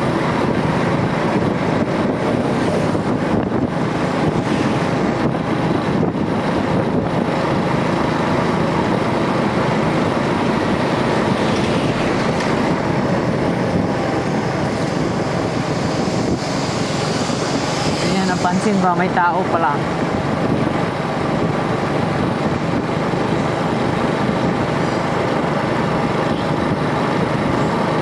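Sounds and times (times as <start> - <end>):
motorcycle engine running: 0.0 - 28.0
wind buffeting microphone: 0.0 - 28.0.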